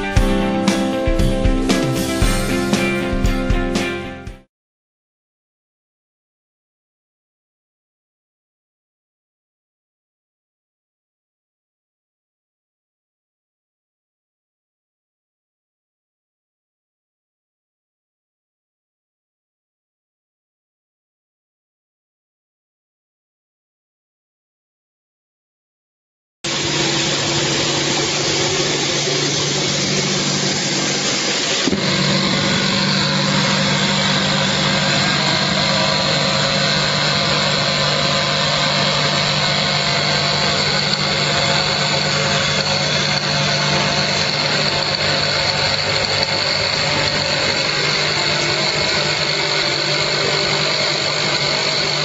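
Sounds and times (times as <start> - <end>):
pressure washer motor drone: 0.0 - 4.0, 26.5 - 52.0.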